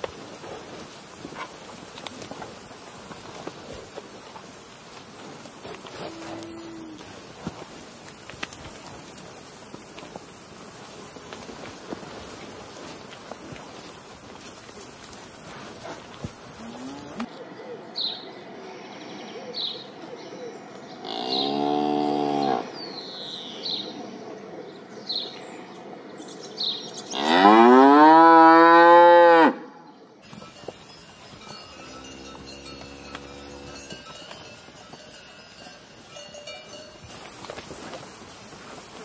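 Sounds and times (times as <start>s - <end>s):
cows mooing: 5.8s - 7.2s, 15.8s - 17.3s, 21.0s - 22.7s, 27.1s - 29.6s, 30.6s - 34.8s.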